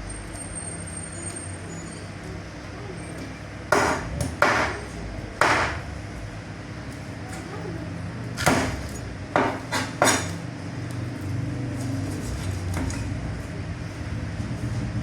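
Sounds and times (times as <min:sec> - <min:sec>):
low machine hum: 0:00.0 - 0:09.7.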